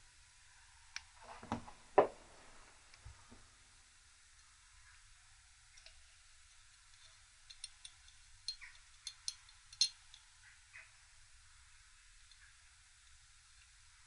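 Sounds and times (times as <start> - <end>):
light metallic clicks: 5.8 - 10.3.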